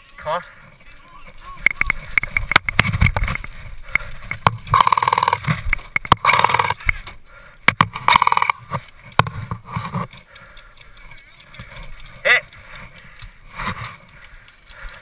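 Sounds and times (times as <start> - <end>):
airsoft gun automatic bursts: 6.2 - 6.8.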